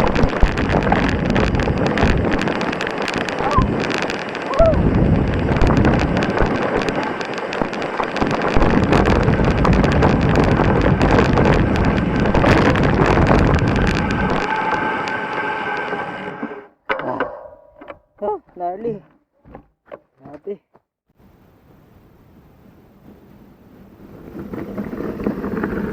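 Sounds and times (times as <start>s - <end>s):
bike chain and frame rattling: 0.0s - 16.0s
wind rush on microphone: 0.0s - 16.5s, 21.2s - 25.9s.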